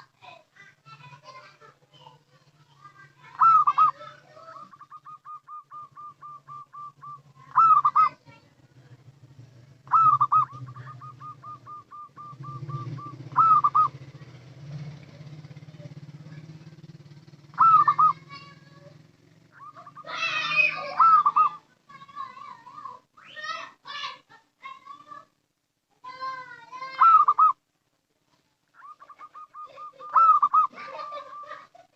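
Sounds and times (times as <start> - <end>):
dove cooing: 2.8 - 22.0, 26.8 - 27.6, 28.8 - 31.9.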